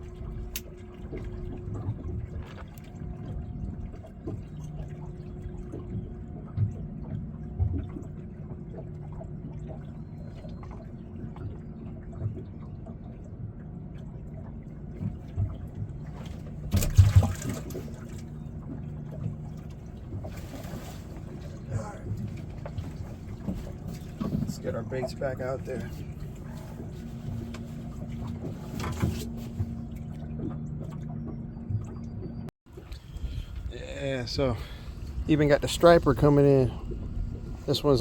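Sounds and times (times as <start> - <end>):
water sloshing and trickling: 0.0 - 38.0
water splash: 15.0 - 31.1.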